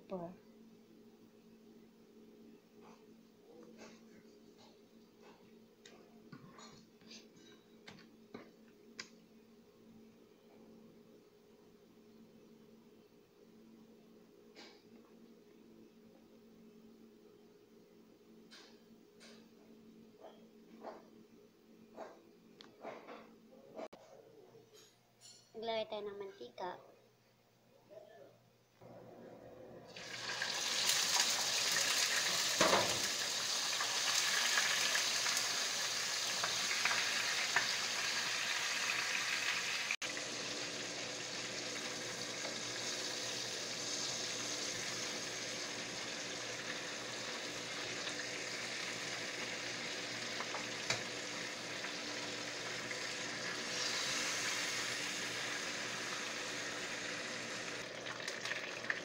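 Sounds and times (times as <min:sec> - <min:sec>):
chicken frying in hot oil: 0:29.9 - 0:59.0.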